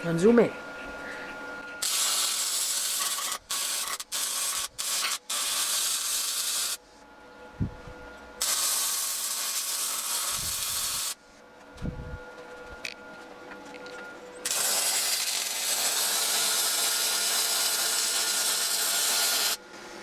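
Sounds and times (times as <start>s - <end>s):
arc welder crackling and hissing: 1.8s - 6.8s, 8.4s - 11.2s, 14.4s - 19.6s.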